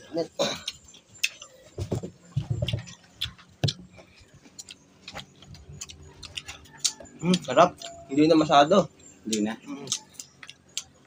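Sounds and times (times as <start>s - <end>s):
mango being bitten and chewed: 2.3s - 8.5s, 9.2s - 11.0s.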